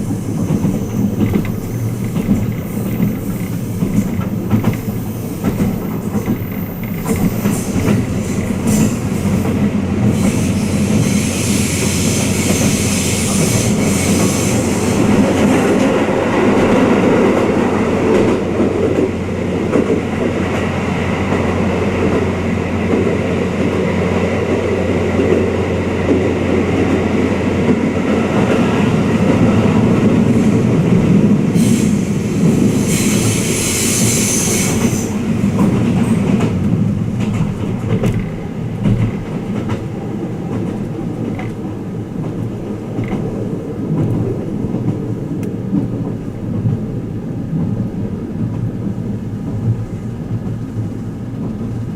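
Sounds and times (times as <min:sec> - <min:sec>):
train wheels rumbling on rail: 0:00.0 - 0:51.9
high hissing squeal: 0:10.1 - 0:15.1, 0:31.6 - 0:35.2.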